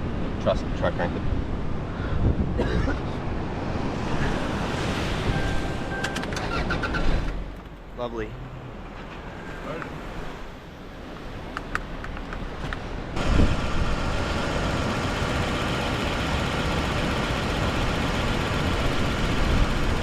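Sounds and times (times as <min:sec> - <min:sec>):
car engine idling: 0:13.2 - 0:20.0.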